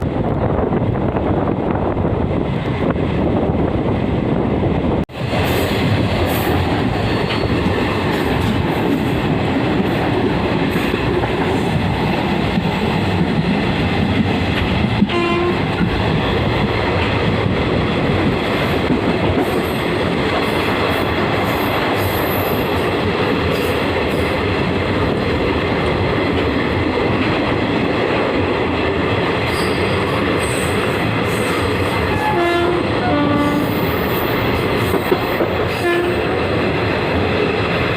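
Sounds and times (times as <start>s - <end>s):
train rumbling and rattling on rails: 0.0s - 37.9s
train horn: 15.1s - 15.6s, 32.0s - 33.9s, 35.7s - 36.5s.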